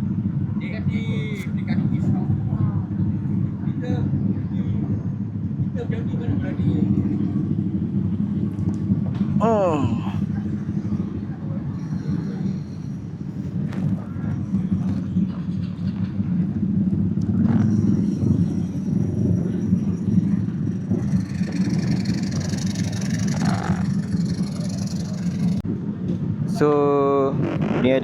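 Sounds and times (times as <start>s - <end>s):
motorcycle engines idling: 16.1s - 25.6s.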